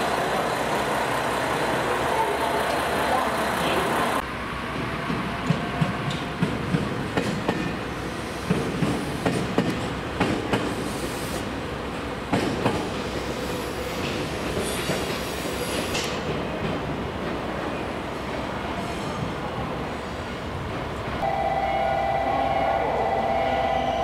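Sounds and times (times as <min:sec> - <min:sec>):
train wheels clunking over joints: 0:02.5 - 0:11.2, 0:11.9 - 0:18.5.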